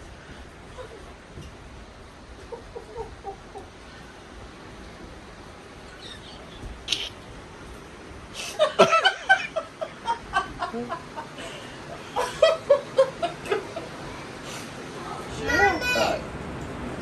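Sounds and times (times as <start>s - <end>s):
person laughing: 8.4s - 13.9s.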